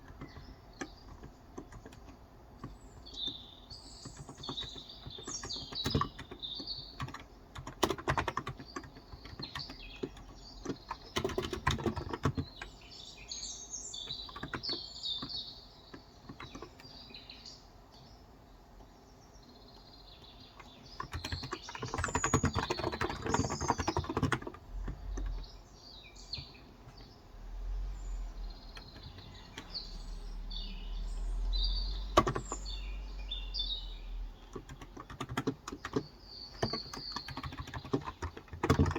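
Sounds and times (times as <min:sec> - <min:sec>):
typing on keyboard: 0:00.0 - 0:03.4, 0:04.0 - 0:12.8, 0:14.0 - 0:17.0, 0:20.6 - 0:25.6, 0:28.7 - 0:29.8, 0:31.9 - 0:32.8, 0:34.4 - 0:38.9
birds chirping: 0:00.0 - 0:38.9.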